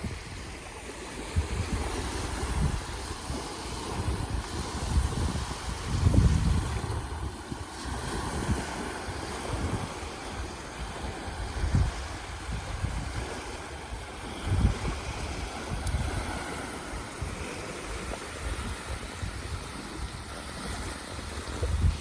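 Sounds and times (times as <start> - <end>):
sea surf: 0.0 - 22.0
wind buffeting microphone: 0.0 - 22.0.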